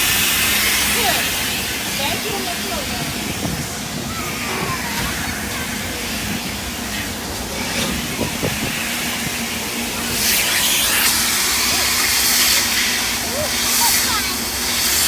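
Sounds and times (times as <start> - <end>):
water jets spraying on car: 0.0 - 15.0.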